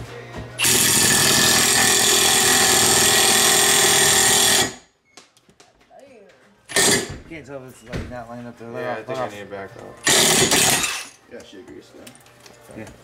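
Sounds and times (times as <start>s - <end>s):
power tool running: 0.6s - 4.8s, 6.7s - 7.2s, 10.0s - 11.2s.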